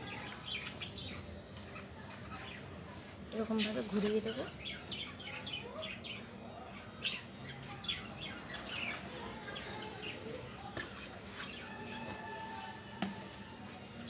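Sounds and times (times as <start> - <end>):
small birds chirping: 0.0 - 12.7.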